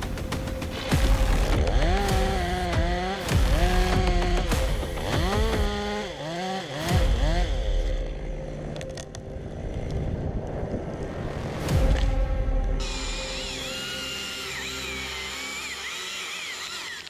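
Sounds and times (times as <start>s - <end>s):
chainsaw engine revving: 0.7s - 8.7s, 12.8s - 17.0s.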